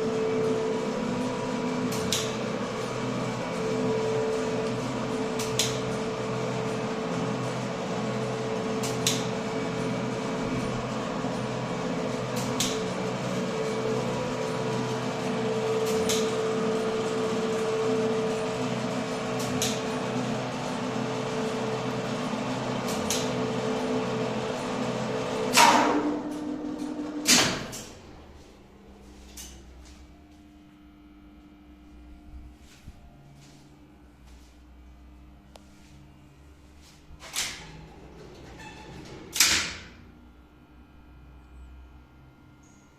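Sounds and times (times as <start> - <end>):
elevator winch motor hum: 0.0 - 30.5, 36.4 - 42.9
loud mechanical clunk: 25.4 - 28.4.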